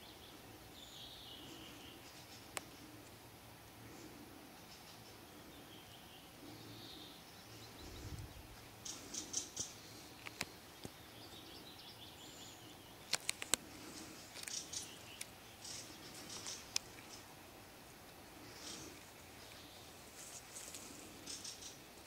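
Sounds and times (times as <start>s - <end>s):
small birds chirping: 0.0s - 22.0s
sharp clicks: 9.6s - 11.0s, 13.0s - 13.7s, 14.3s - 17.2s.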